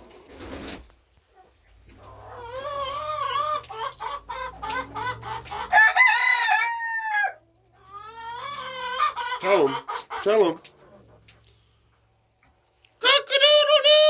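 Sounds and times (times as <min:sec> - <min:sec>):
rooster crowing: 0:04.3 - 0:07.4.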